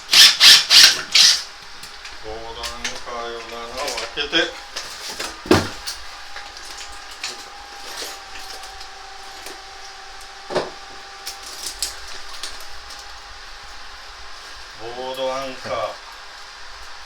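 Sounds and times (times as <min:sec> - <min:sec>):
tools clicking: 0:00.1 - 0:01.5
faint hum: 0:01.4 - 0:17.0.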